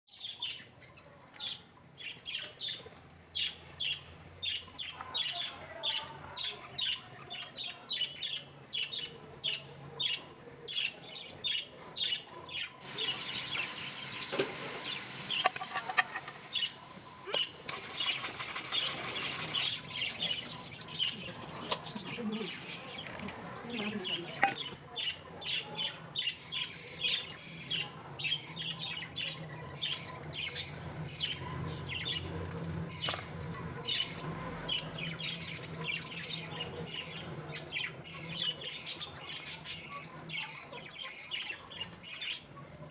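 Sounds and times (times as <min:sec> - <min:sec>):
bird chirping: 0:10.8 - 0:32.2
steady hiss: 0:12.8 - 0:18.5.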